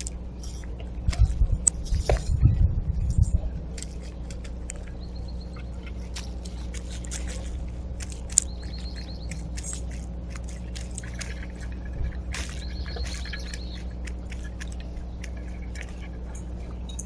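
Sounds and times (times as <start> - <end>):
steady low hum: 0.0 - 17.0
small birds ticking: 3.8 - 17.0
high bird call notes: 8.2 - 9.6, 11.1 - 14.0.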